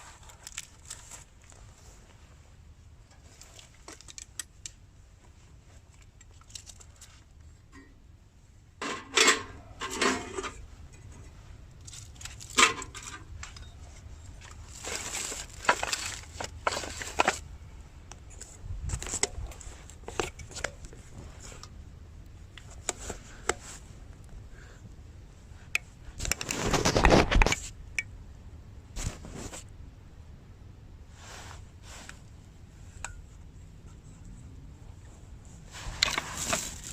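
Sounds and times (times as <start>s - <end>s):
rustling of gear: 11.3s - 17.5s, 35.7s - 36.9s.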